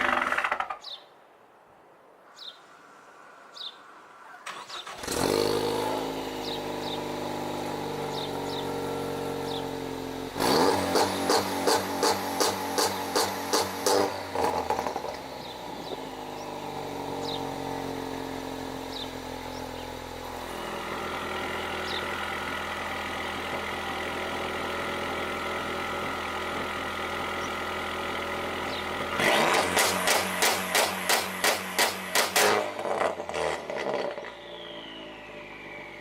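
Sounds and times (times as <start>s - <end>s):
car engine idling: 6.0s - 10.4s, 11.5s - 29.2s.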